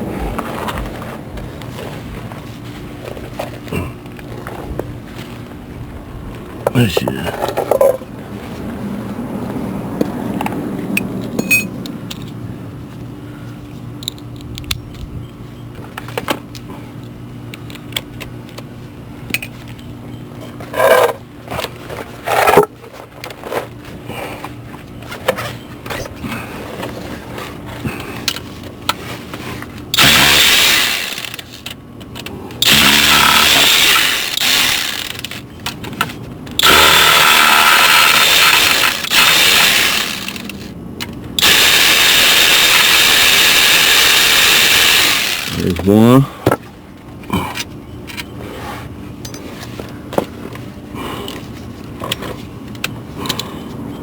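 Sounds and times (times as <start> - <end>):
power tool running: 29.9 - 31.7, 32.6 - 35.4, 36.6 - 40.7, 41.4 - 46.0.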